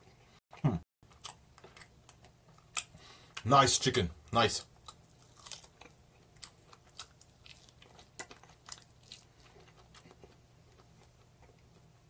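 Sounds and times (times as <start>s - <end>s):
faint chewing with mouth clicks: 1.1s - 3.4s, 4.8s - 12.0s.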